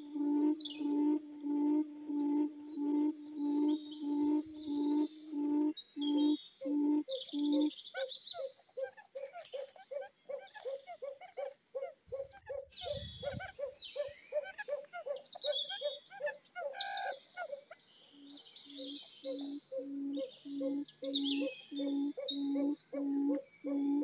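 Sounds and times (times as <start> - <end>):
bird calling short low notes: 0.0 - 7.7
birds chirping and whistling: 0.0 - 8.0, 18.2 - 24.0.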